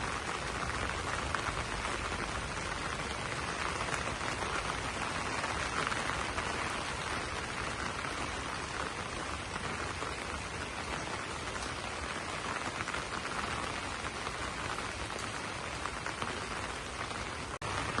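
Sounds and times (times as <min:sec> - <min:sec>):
rain on leaves: 0:00.0 - 0:18.0.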